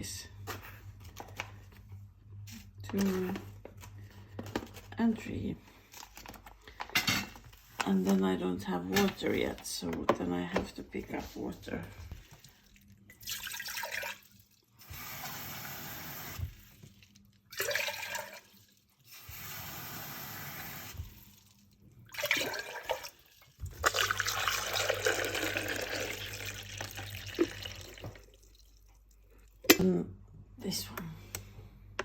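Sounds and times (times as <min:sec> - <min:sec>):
water pouring from tap: 0:12.2 - 0:29.6.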